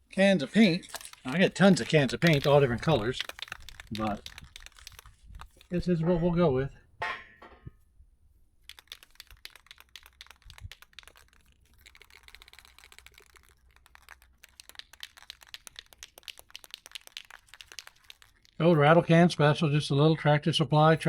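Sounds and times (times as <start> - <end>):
spray can ball rattling: 0.0 - 6.0, 8.6 - 18.9.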